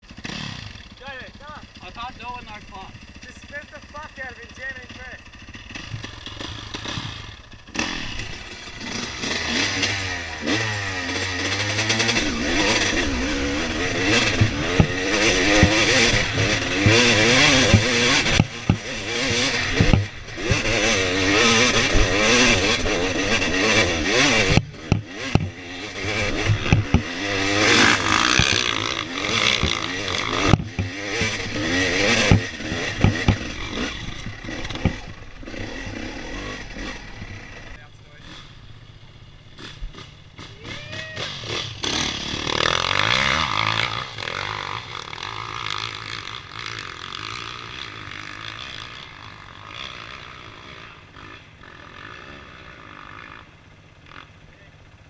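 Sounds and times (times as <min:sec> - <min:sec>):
dirt bike engine revving: 0:00.0 - 0:55.0
clattering over rough ground: 0:11.1 - 0:35.4.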